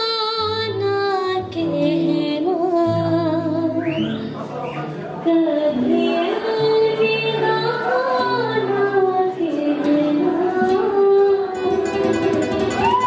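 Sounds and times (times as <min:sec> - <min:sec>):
woman singing wordless melody: 0:00.0 - 0:04.0, 0:05.2 - 0:13.0.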